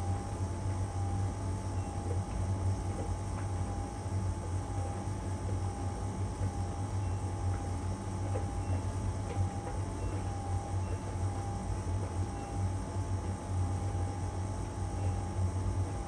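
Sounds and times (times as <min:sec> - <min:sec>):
thin steady whine: 0:00.0 - 0:16.0
laundry tumbling ticks: 0:02.0 - 0:13.9.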